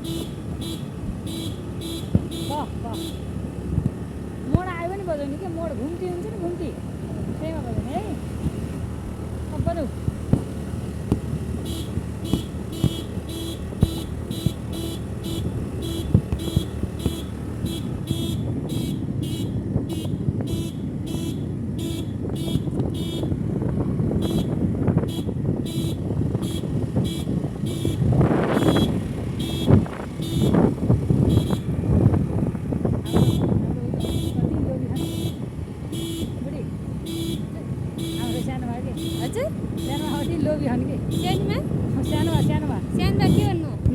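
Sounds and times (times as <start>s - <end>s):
vehicle engine and road noise: 0.0s - 43.9s.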